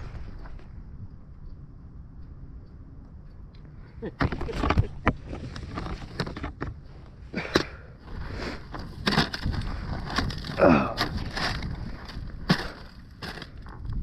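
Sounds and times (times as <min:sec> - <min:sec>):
creaking groan: 0:07.3 - 0:13.8
sticks snapping underfoot: 0:09.0 - 0:13.8.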